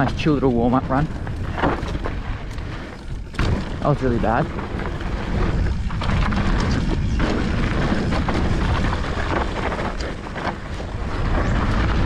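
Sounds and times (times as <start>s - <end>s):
bike knocks and rattles: 0.0s - 12.0s
tyres rolling on dirt: 0.0s - 12.0s
wind rumbling on microphone: 0.0s - 12.0s.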